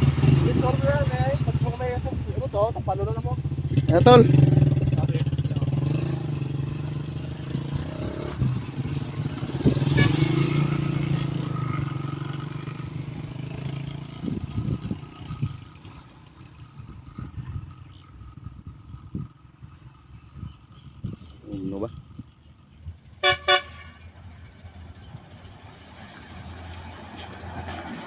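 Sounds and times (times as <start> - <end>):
truck engine droning: 0.0 - 28.0.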